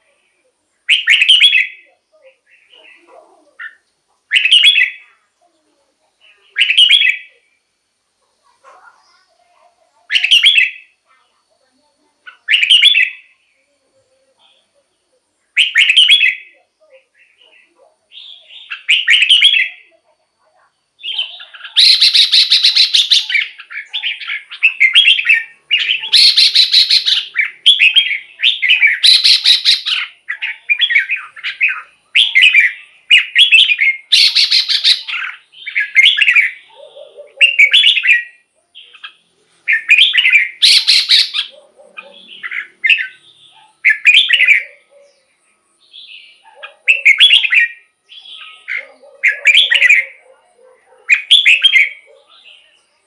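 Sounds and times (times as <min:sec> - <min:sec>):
bird warbling song: 0:00.9 - 0:05.2, 0:10.0 - 0:11.0, 0:12.2 - 0:16.6, 0:17.2 - 0:20.0, 0:21.0 - 0:53.0
harsh rasping bird calls: 0:21.0 - 0:45.3, 0:45.9 - 0:52.3.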